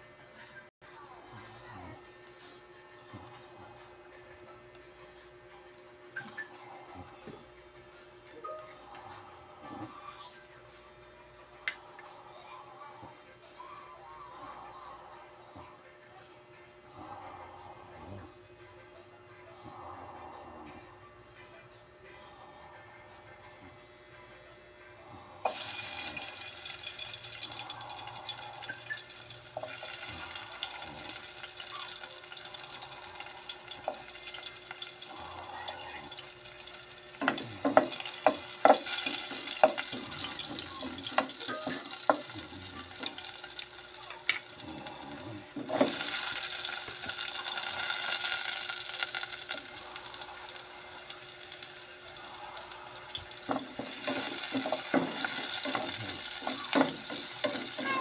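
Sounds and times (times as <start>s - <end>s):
hot oil sizzling in a pot: 25.4s - 58.0s.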